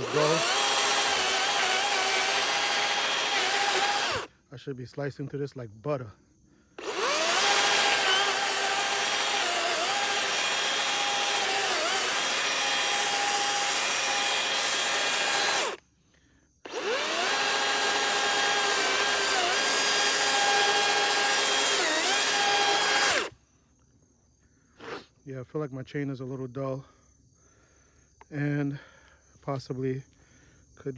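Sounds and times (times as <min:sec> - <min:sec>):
electric chainsaw cutting wood: 0:00.0 - 0:04.3, 0:06.8 - 0:15.8, 0:16.7 - 0:23.3.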